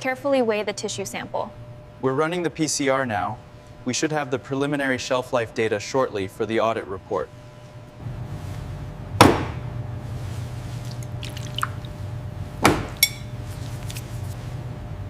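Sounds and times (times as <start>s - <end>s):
steady low hum: 0.0s - 15.0s
sharp knocks: 9.2s - 9.6s, 12.6s - 13.0s
short ringing clink: 13.0s - 13.4s.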